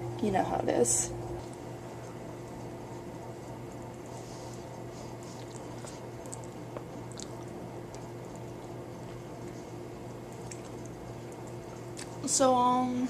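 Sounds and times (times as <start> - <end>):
low electrical hum: 0.0 - 13.0
person chewing: 2.0 - 12.2
wet mouth clicks: 5.4 - 8.2, 10.3 - 12.2.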